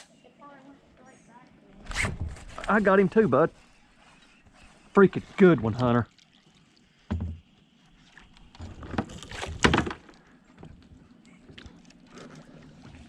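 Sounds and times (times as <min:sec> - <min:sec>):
knocks and splashy scuffs in kayak: 0:07.0 - 0:10.2.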